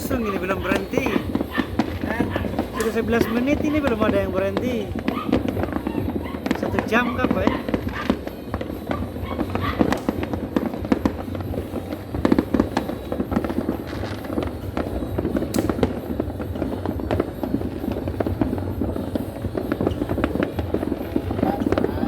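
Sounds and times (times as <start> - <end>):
fireworks and firecrackers crackling: 0.0 - 22.0.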